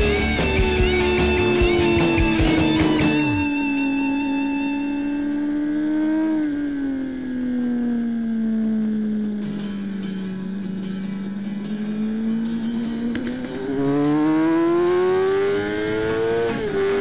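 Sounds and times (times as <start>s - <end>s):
rock music with drums: 0.0s - 3.8s, 9.4s - 17.0s
motorcycle engine revving high: 0.0s - 17.0s.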